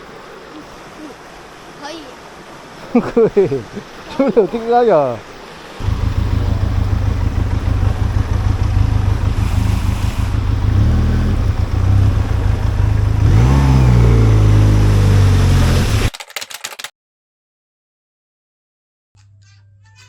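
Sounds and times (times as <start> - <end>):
motorcycle engine revving: 5.8 - 16.1.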